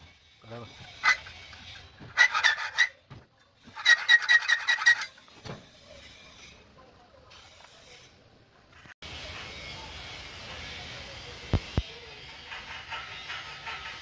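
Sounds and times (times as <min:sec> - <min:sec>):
hand tool rasping metal: 0:00.4 - 0:06.7.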